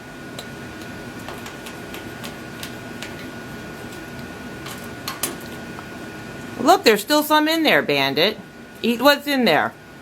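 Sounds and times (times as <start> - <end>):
steady room hum: 0.0 - 10.0.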